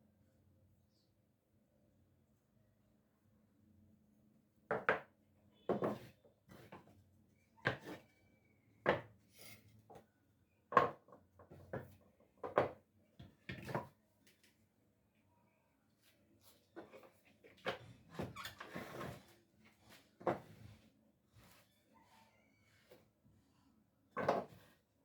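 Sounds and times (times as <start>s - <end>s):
wood knocking on a workbench: 4.7s - 5.1s, 10.7s - 11.1s.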